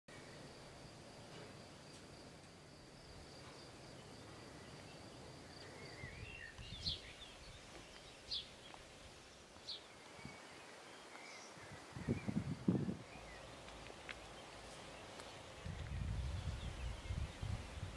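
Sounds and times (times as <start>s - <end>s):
high insect drone: 0.1s - 17.9s
bird chirping: 3.9s - 17.9s.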